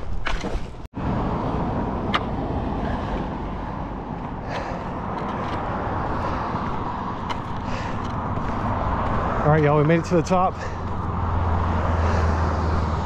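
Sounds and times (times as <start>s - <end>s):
motor vehicle running: 1.0s - 13.0s
footsteps: 3.0s - 11.2s.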